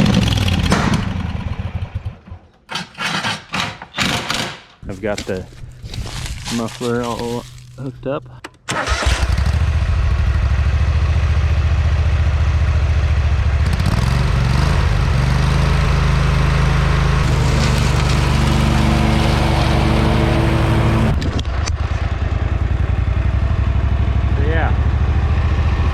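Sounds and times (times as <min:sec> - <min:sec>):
lawn mower engine exhaust: 0:00.0 - 0:03.3, 0:08.7 - 0:25.9.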